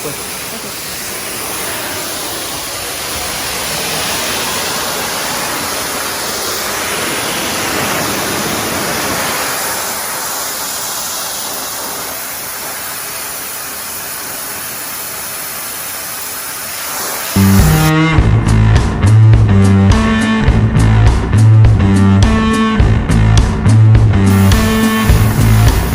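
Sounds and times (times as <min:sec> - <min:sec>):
pressure cleaner spray hissing: 0:00.0 - 0:17.9, 0:24.3 - 0:25.9.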